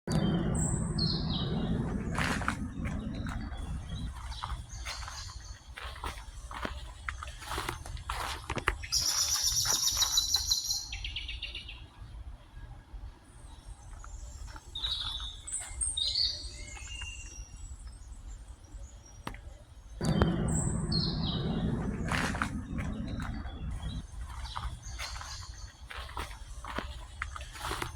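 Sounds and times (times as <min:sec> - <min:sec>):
low rumbling noise: 0:00.0 - 0:08.9, 0:19.9 - 0:27.9
birds chirping and calling: 0:00.1 - 0:06.8, 0:20.0 - 0:27.9.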